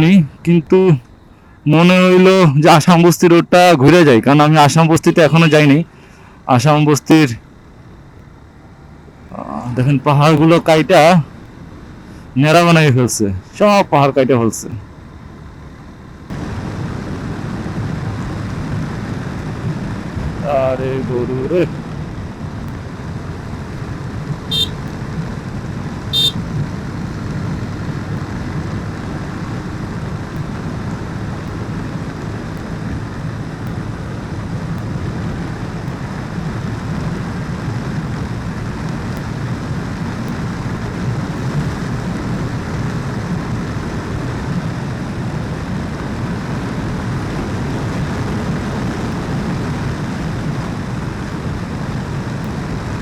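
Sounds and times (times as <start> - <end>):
rushing wind: 0.0 - 53.0
motorcycle engine rumble: 7.3 - 53.0
short horn beeps: 24.5 - 24.9, 26.1 - 26.4.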